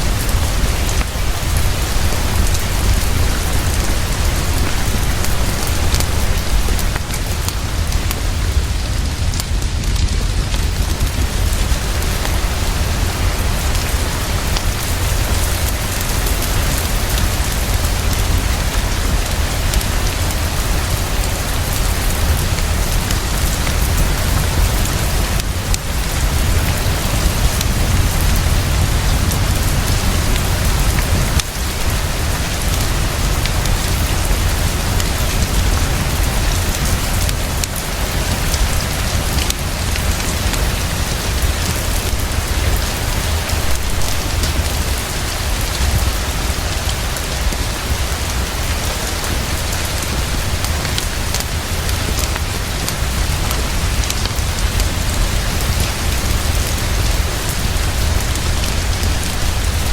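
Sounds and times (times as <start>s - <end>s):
constant low rumble: 0.0s - 59.9s
heavy rainfall: 0.0s - 59.9s.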